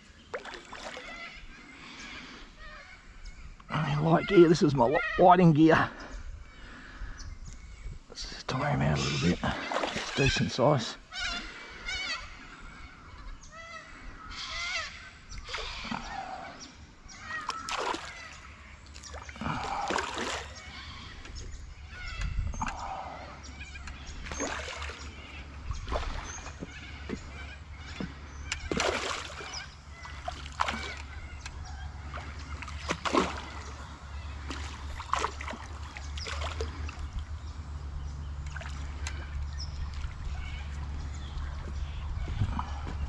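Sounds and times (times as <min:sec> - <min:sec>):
fish splashing and thrashing in water: 0:00.2 - 0:01.3, 0:09.5 - 0:10.4, 0:17.3 - 0:21.5, 0:24.2 - 0:37.4, 0:38.3 - 0:40.9.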